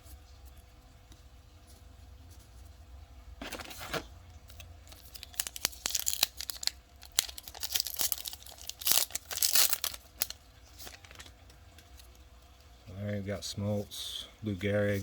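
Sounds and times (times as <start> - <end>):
wrapper tearing: 3.4 - 11.3
wrapper crinkling: 3.4 - 12.2.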